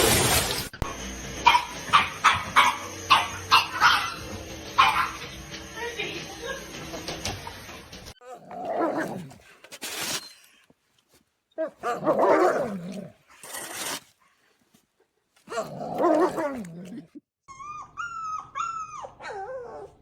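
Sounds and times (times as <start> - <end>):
dog whimpering: 17.5 - 20.0.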